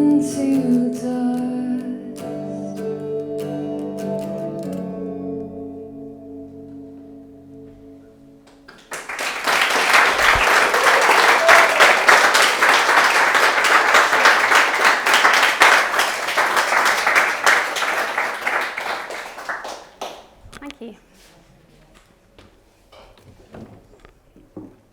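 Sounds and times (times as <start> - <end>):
plucked instrument chord ringing: 1.9 - 8.5
audience applauding: 8.7 - 20.4.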